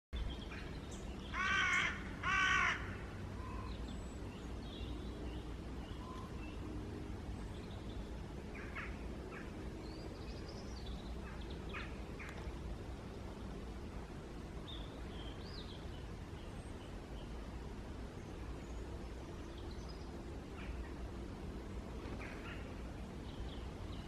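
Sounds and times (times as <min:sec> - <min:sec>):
crow cawing: 0:01.3 - 0:03.1.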